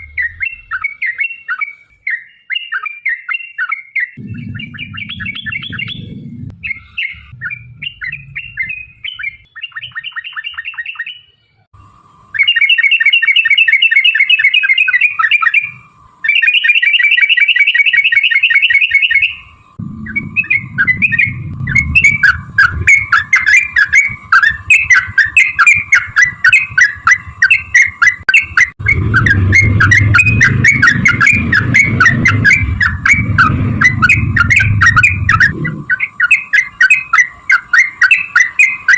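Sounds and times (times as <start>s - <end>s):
low rumble: 0.0s - 0.8s, 4.2s - 9.5s, 19.7s - 28.0s, 28.7s - 36.1s
bubbling bird trills: 4.2s - 10.8s, 18.9s - 38.9s.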